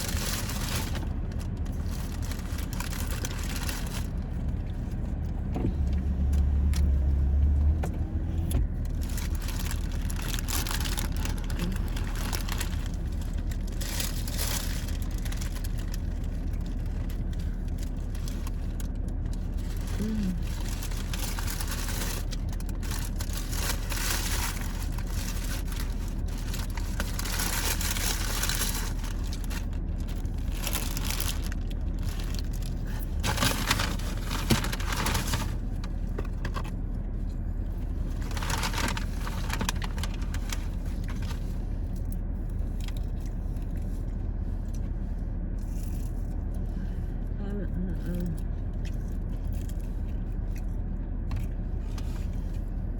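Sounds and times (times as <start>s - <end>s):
food wrappers crinkling: 0.0s - 4.7s, 8.8s - 36.8s, 37.9s - 43.9s
low rumble: 0.0s - 52.9s
steady low hum: 0.0s - 52.9s.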